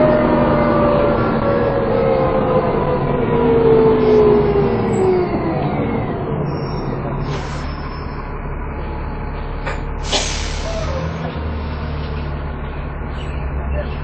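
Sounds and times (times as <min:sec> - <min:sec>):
bus diesel engine running: 0:00.0 - 0:14.0
compressed air hiss: 0:10.0 - 0:10.9.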